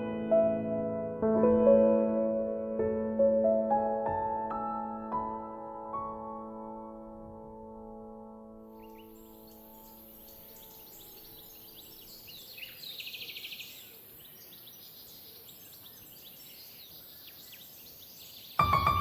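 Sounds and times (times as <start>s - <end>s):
small birds chirping: 8.8s - 19.0s.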